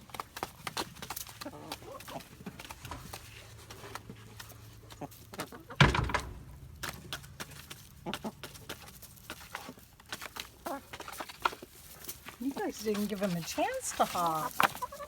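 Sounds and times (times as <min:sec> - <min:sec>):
chickens pecking taps: 0:00.0 - 0:15.0
loud thump: 0:05.8 - 0:07.3.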